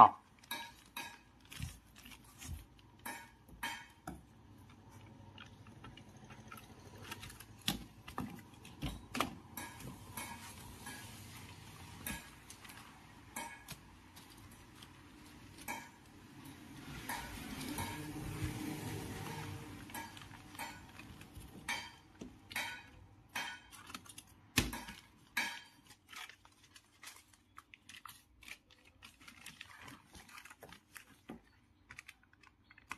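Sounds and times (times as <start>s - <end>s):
hands handling tubing and foil tape: 0.2s - 32.9s
rustling: 23.7s - 32.9s.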